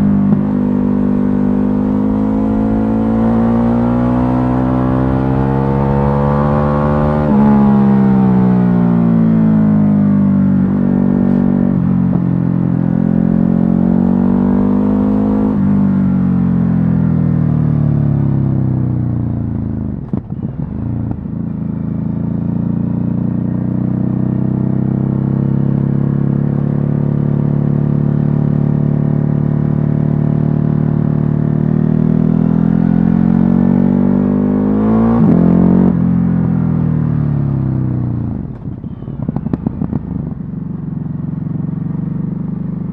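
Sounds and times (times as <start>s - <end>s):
motorcycle engine under load: 0.0s - 22.6s, 34.1s - 42.9s.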